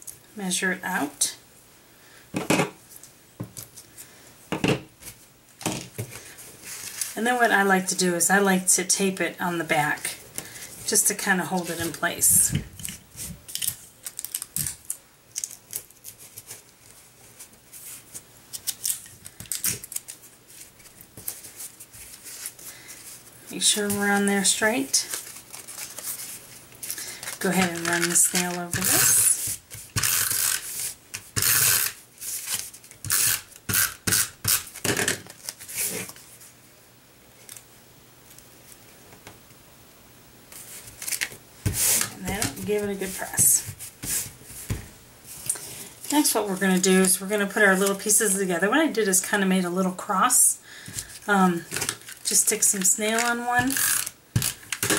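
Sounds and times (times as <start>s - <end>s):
sticky tape crackling: 12.8s - 17.0s, 23.6s - 36.2s, 51.1s - 54.9s.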